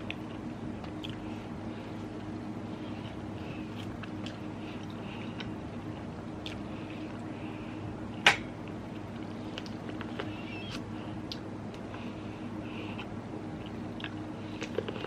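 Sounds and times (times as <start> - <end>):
wet chewing: 0.0 - 1.3, 2.0 - 7.2, 12.9 - 15.0
steady low hum: 0.0 - 15.0.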